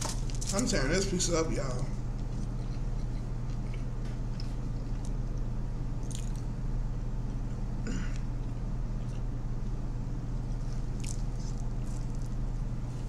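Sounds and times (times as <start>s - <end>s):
low hum: 0.0s - 13.0s
person chewing: 2.1s - 6.6s, 7.2s - 9.4s, 10.4s - 13.0s.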